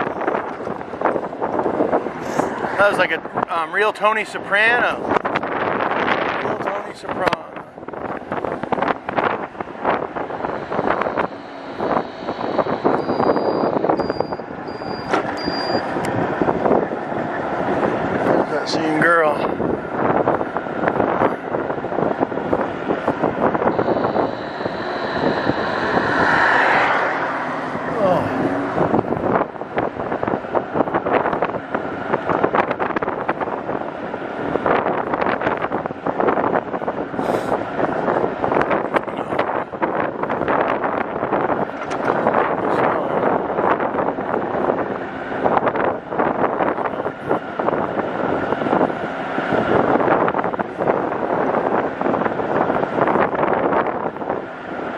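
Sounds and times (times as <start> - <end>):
bike road noise: 0.0 - 54.9
wind buffeting microphone: 0.0 - 54.9
faint high beep: 10.6 - 15.9, 23.7 - 27.3.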